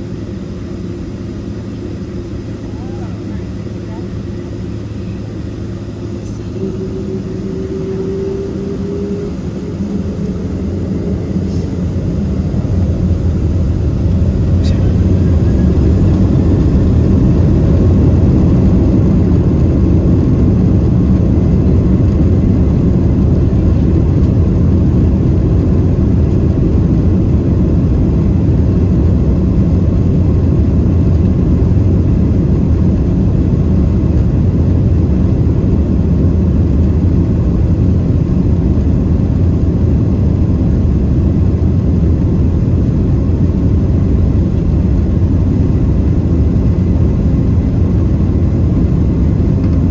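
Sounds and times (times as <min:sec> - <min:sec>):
jet engines rumbling: 0:00.0 - 0:49.9.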